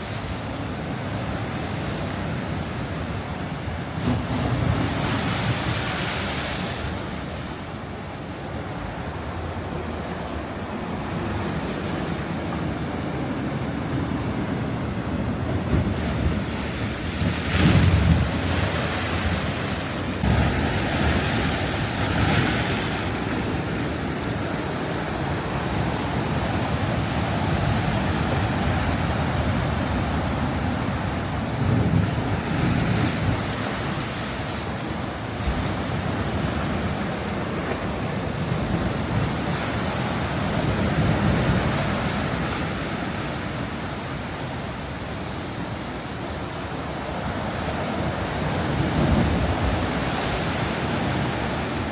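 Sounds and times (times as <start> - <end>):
sea waves washing ashore: 0.0 - 51.9
wind buffeting microphone: 8.7 - 44.4.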